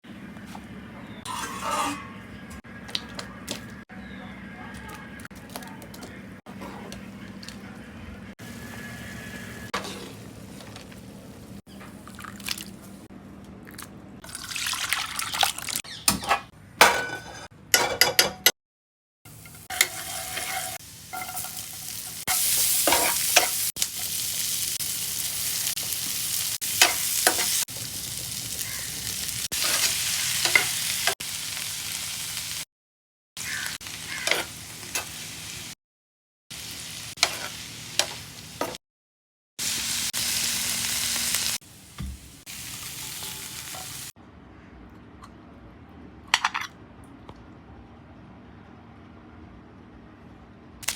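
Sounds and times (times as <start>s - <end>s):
utensil stirring and scraping: 1.3s - 2.4s, 19.6s - 21.4s
vegetables sizzling in a pan: 8.4s - 11.6s, 19.3s - 32.6s, 33.4s - 35.8s, 36.5s - 38.8s, 39.6s - 44.1s.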